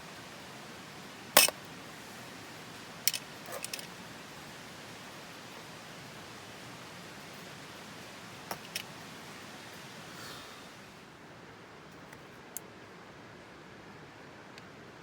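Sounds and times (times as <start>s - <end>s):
steady hiss: 0.0s - 15.0s
sharp clicks and knocks: 8.5s - 8.9s.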